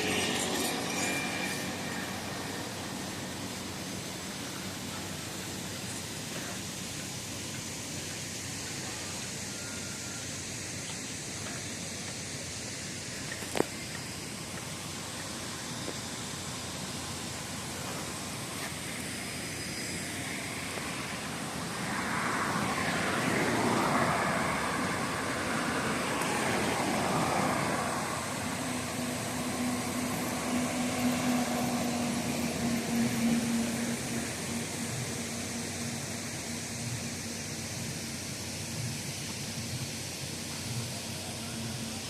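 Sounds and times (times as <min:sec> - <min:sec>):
steady background hiss: 0:00.0 - 0:42.0
vehicle passing by: 0:19.8 - 0:37.0.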